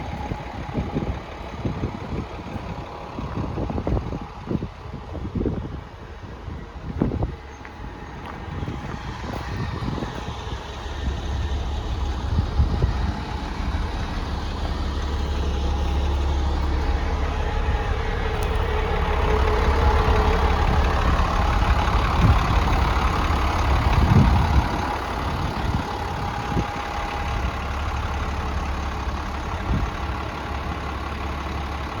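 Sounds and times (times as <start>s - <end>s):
steady whine: 0.0s - 30.0s
truck engine running: 0.0s - 32.0s.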